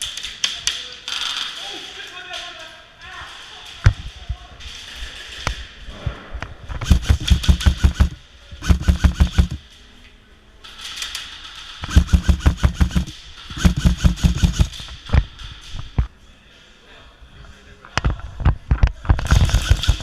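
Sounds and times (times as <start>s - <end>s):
airsoft rifle firing full auto: 6.8s - 9.6s, 11.8s - 14.8s, 19.3s - 20.0s.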